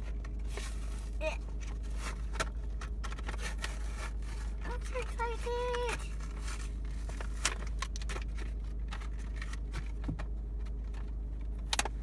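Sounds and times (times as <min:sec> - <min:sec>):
low rumble inside a car: 0:00.0 - 0:12.0.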